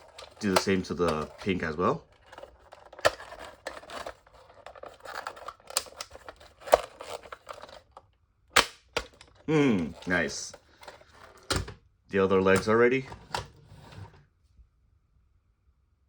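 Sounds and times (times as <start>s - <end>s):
plastic toy parts clicking: 0.0s - 8.0s
plastic parts snapping into place: 8.6s - 9.4s.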